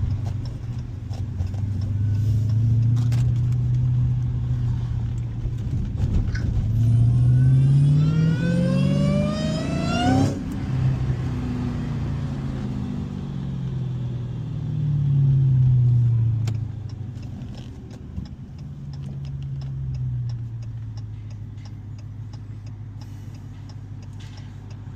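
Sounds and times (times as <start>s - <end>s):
light ticking: 0.0s - 4.3s, 16.4s - 24.9s
car engine accelerating hard: 0.0s - 24.9s.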